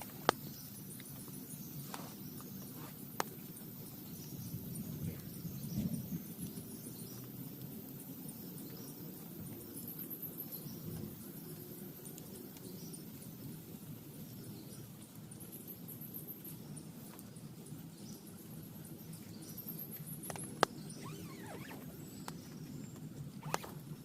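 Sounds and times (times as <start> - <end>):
rain pattering on a tent: 0.0 - 24.0.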